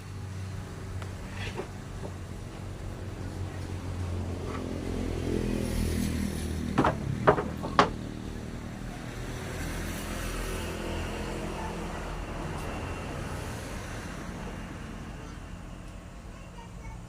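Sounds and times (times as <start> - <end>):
low motor hum: 0.0 - 9.2
sharp knocks: 6.6 - 8.1.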